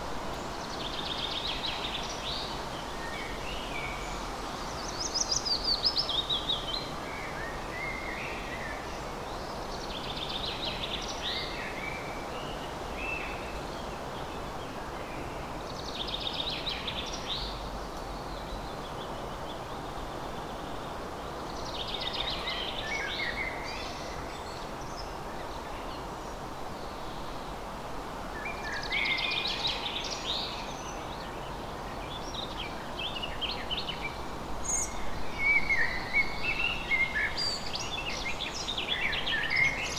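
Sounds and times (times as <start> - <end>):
songbird singing: 0.0 - 20.7, 28.4 - 39.9
outdoor background hiss: 0.0 - 39.9.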